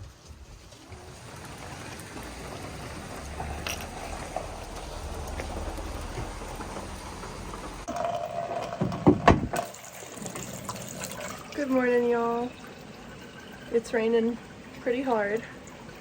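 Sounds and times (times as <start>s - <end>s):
hard rain falling: 0.7s - 7.9s
raindrop ticks: 0.7s - 7.9s.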